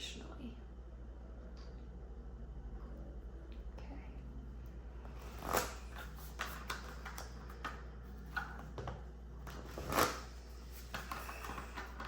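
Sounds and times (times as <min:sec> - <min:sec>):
cards clicking and sliding: 0:05.1 - 0:08.8, 0:09.4 - 0:12.0.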